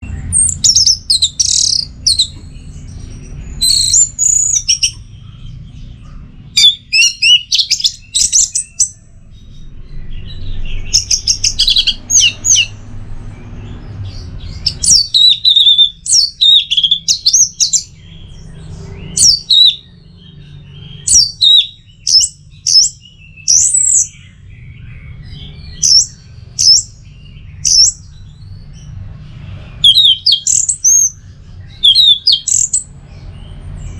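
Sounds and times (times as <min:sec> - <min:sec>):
steady low hum: 0:00.0 - 0:19.2
thrush singing: 0:00.0 - 0:33.9.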